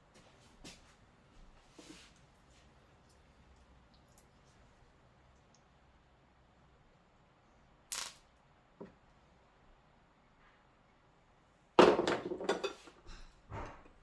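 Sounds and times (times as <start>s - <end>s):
objects clattering and knocking: 11.8s - 14.0s.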